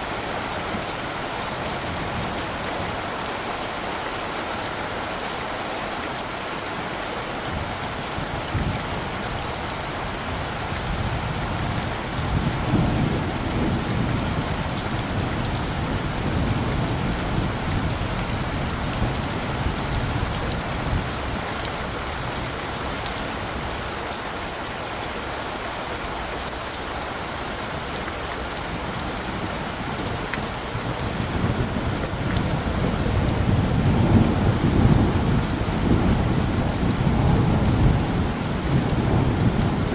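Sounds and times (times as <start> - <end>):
steady rain falling: 0.0 - 39.9
low thunder rumbling: 7.5 - 22.6, 28.7 - 39.9.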